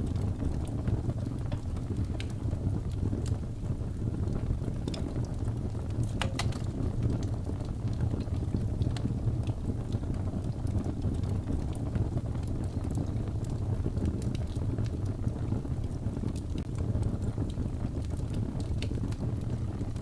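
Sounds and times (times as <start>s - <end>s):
fire rumbling: 0.0s - 20.0s
wood fire crackling and popping: 0.0s - 20.0s.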